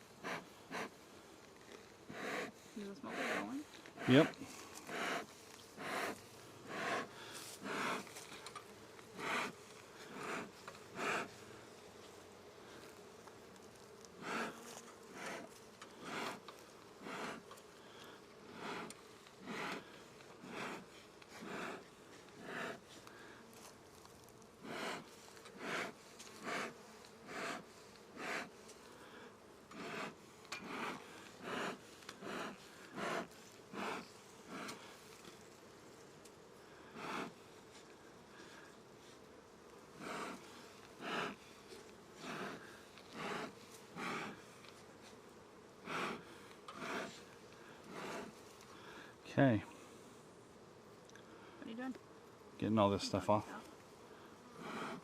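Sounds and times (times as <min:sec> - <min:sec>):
honeybees humming: 0:00.0 - 0:55.0
smoker bellows puffing: 0:03.1 - 0:11.4, 0:14.2 - 0:21.8, 0:24.6 - 0:35.0, 0:40.0 - 0:41.4, 0:42.1 - 0:44.4, 0:45.8 - 0:48.9.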